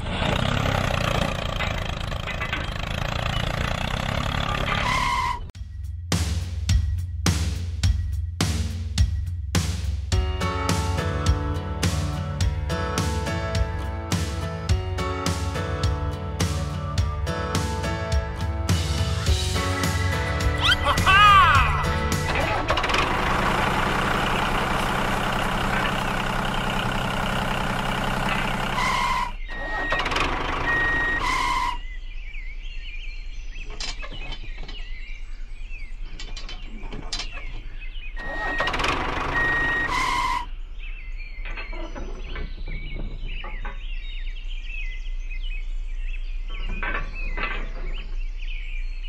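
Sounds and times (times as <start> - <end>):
model tractor engine: 0.0 - 5.1, 21.8 - 31.6, 38.2 - 40.4
short beeping tones: 39.3 - 40.2.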